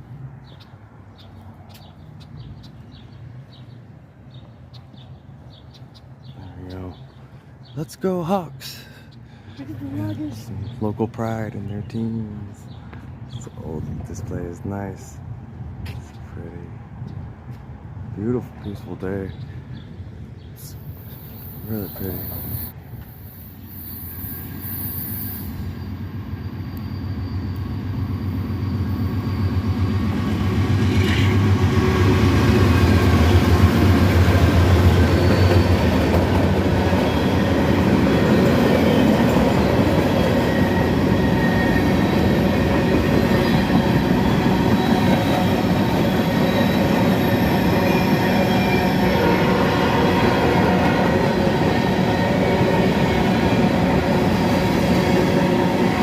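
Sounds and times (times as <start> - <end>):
train cars rumbling by: 0.0 - 56.0
locomotive engine: 25.9 - 56.0.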